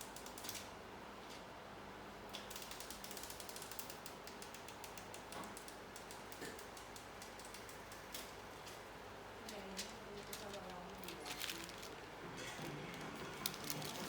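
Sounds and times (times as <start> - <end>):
small sharp mechanical clicks: 0.0 - 0.7, 2.3 - 8.8.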